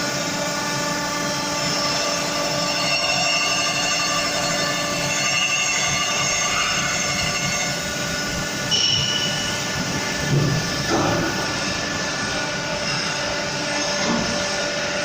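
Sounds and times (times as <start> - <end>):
grinding machine whine: 0.0 - 15.0
short higher squeal: 1.7 - 8.0, 8.7 - 9.7.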